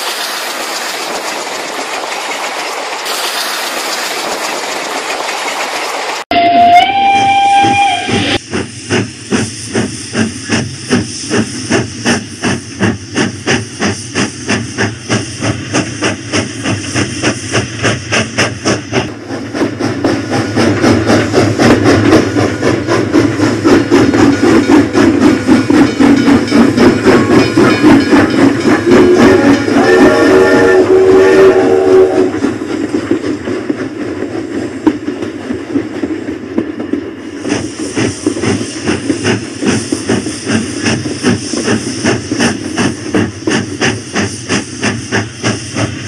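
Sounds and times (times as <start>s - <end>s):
toy train whistle: 6.3s - 8.4s, 28.9s - 32.4s.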